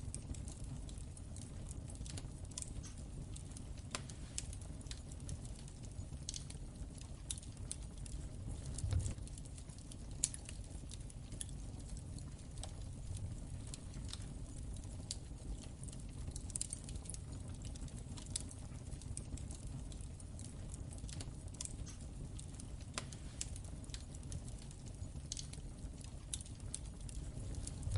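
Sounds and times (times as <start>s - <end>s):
low fire rumble: 0.0s - 27.9s
wood fire crackling: 0.0s - 27.9s.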